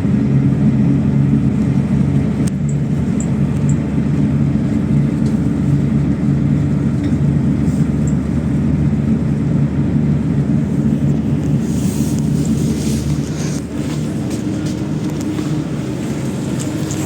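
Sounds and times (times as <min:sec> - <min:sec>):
bus engine humming: 0:00.0 - 0:17.0.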